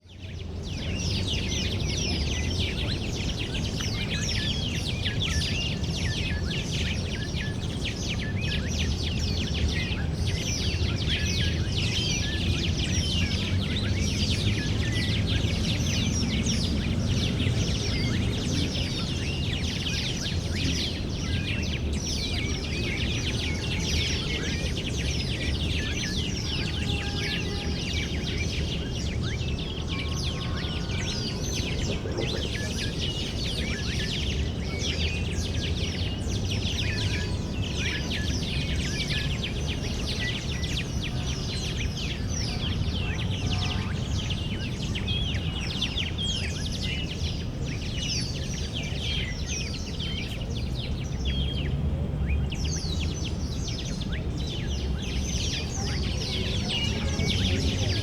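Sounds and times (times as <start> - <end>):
birds chirping and singing: 0.0 - 58.0.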